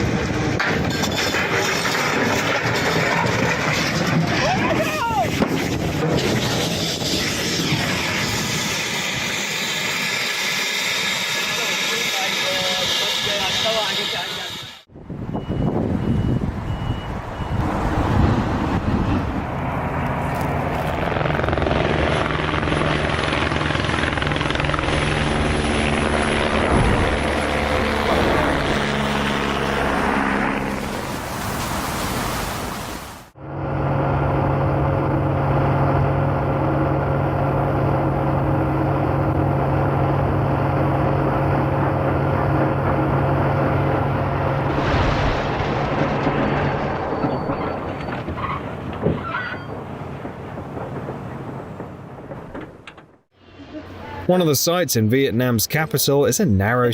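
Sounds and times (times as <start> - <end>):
heavy engine drone: 5.4 - 32.5, 33.3 - 52.2
steadier engine drone: 15.7 - 30.8, 33.4 - 45.1.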